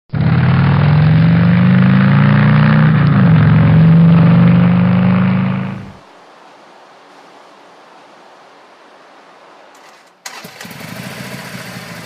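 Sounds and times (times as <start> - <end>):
motorcycle engine running: 10.6 - 12.0.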